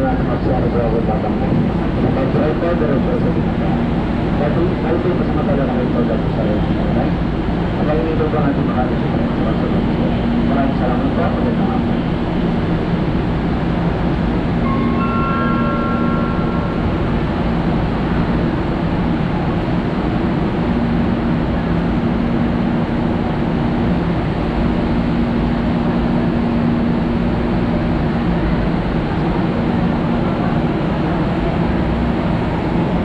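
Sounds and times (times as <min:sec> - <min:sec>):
train rumbling on track: 0:00.0 - 0:33.0
brief high tones: 0:14.6 - 0:18.2.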